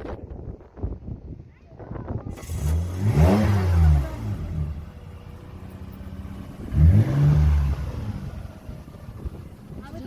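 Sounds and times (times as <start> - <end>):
vehicle engine revving: 2.3 - 10.0.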